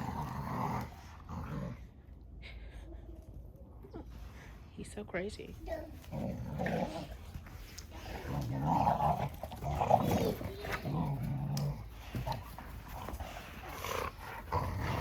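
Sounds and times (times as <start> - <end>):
dogs growling: 0.0 - 2.1, 5.9 - 15.0.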